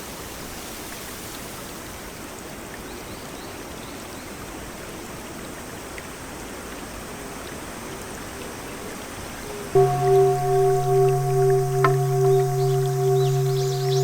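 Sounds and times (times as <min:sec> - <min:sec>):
faint low steady tone: 0:09.5 - 0:14.0.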